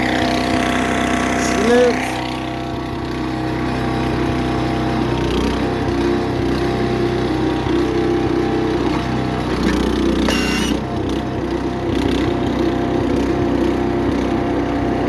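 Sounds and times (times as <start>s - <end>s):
small gasoline engine running: 0.0s - 15.0s
high metallic ring: 10.2s - 10.9s.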